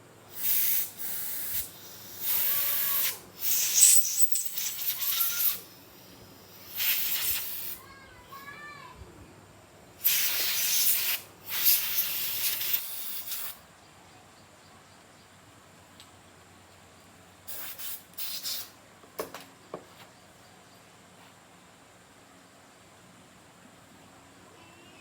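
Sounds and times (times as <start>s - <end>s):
pressurised spray hissing: 0.3s - 7.9s, 10.0s - 13.6s, 17.5s - 18.8s.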